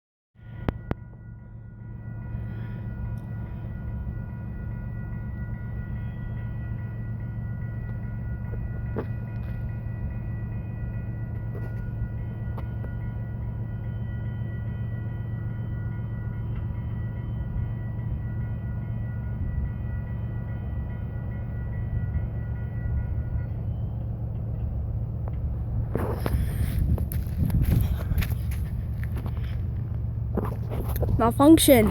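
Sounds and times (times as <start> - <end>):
high ringing tones: 0.4 - 25.0
freight train low rumble: 0.4 - 31.9.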